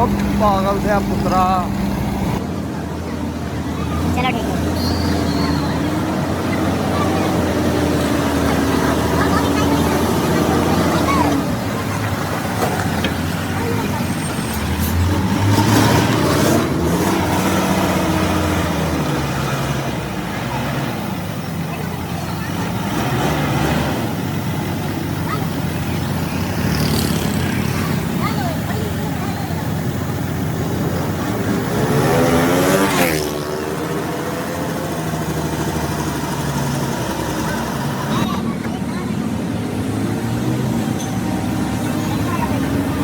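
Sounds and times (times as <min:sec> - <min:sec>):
heavy truck engine running: 0:00.0 - 0:43.0.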